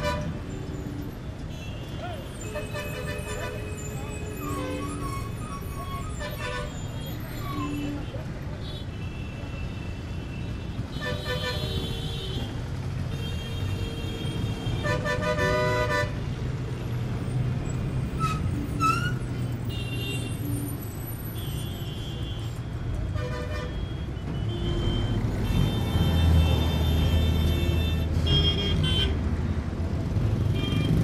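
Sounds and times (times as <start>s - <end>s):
vehicle horns honking: 0.0s - 0.5s, 1.5s - 16.2s, 21.2s - 29.2s.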